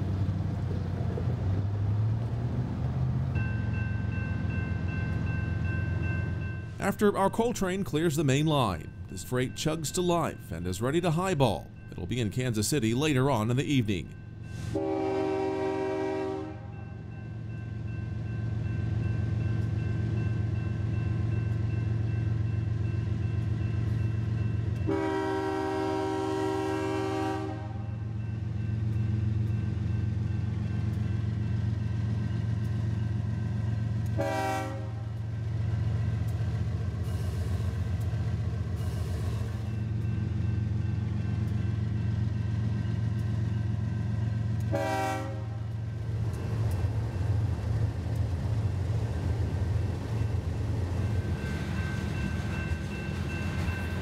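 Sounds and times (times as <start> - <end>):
diesel locomotives droning: 0.0 - 54.0
train air horn: 14.6 - 16.8, 24.9 - 28.0, 34.2 - 35.1, 44.7 - 45.6.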